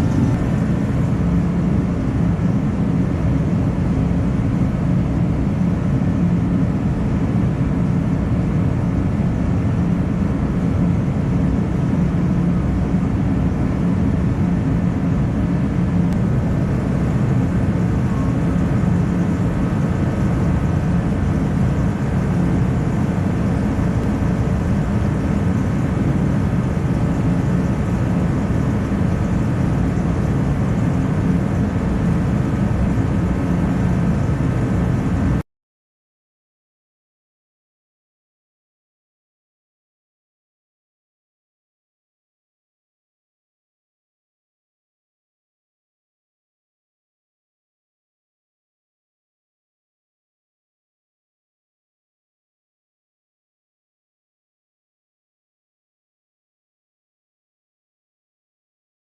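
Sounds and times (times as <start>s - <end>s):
loud mechanical drone: 0.0s - 35.4s.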